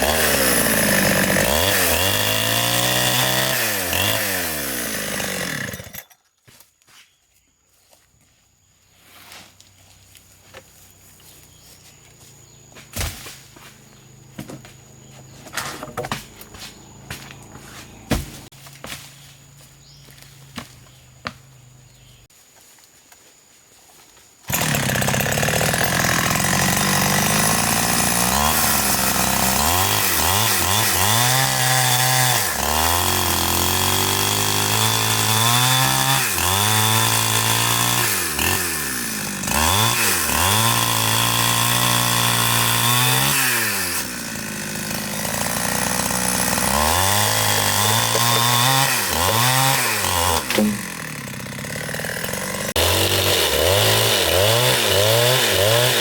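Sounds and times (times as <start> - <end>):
chainsaw cutting wood: 0.0 - 6.2, 24.4 - 56.0.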